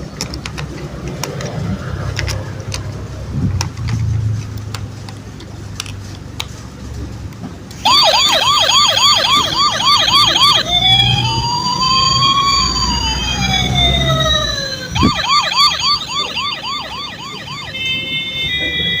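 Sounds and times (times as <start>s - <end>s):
toy police siren: 7.8s - 19.0s.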